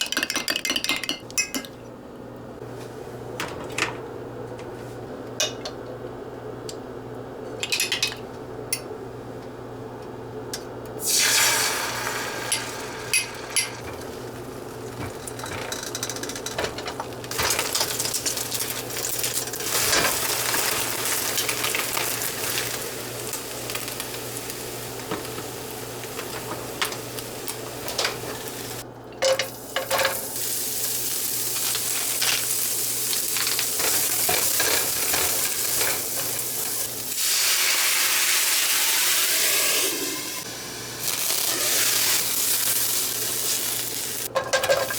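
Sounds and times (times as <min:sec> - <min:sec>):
cookware clinking: 0:00.0 - 0:01.8, 0:12.5 - 0:14.0
food sizzling in a pan: 0:11.0 - 0:13.5, 0:29.6 - 0:44.9.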